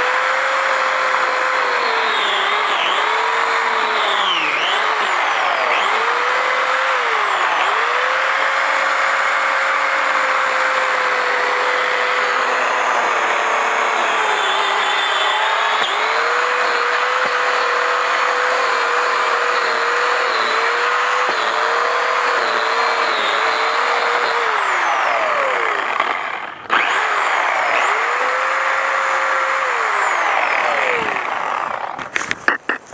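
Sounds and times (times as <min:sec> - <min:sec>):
electric pole saw whining: 0:00.0 - 0:32.8.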